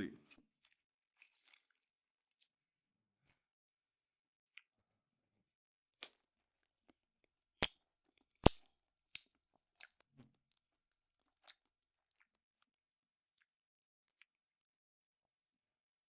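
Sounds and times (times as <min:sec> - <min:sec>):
eating sounds: 0:00.3 - 0:01.8.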